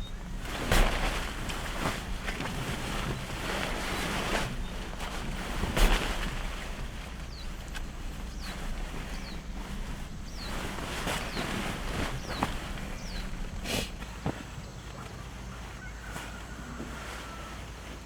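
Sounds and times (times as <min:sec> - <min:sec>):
rain and wind hissing: 0:00.0 - 0:14.3.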